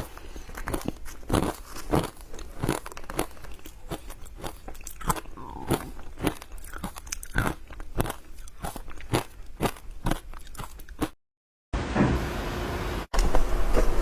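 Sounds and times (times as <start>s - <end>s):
ice crunching while chewing: 0.0s - 11.2s.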